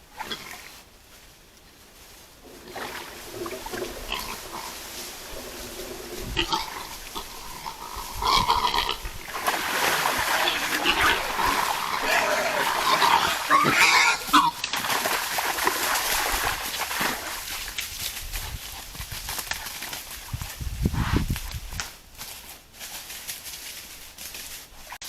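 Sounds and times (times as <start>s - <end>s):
wild boars grunting and squealing: 2.5s - 14.8s.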